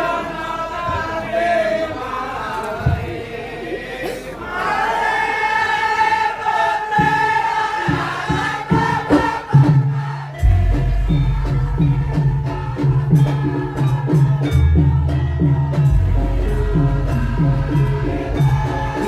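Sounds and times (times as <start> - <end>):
voices singing together: 0.0 - 19.0
percussion strikes: 6.4 - 19.0
steady drum beat: 6.8 - 19.0.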